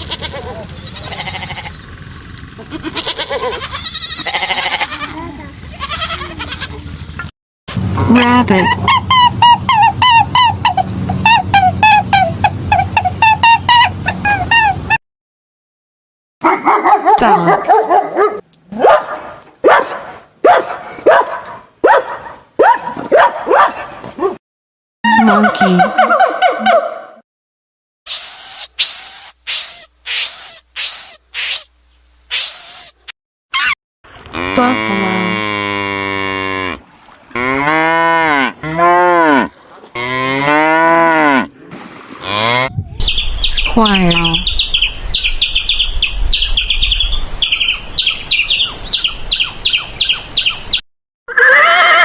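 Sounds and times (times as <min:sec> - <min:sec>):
dog barking: 0:16.4 - 0:24.4, 0:26.0 - 0:27.2
buffalo bellowing: 0:34.3 - 0:42.8.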